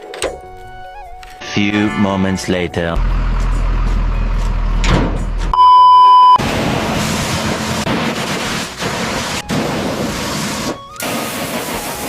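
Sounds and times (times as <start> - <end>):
electronic beep: 5.6 - 6.4.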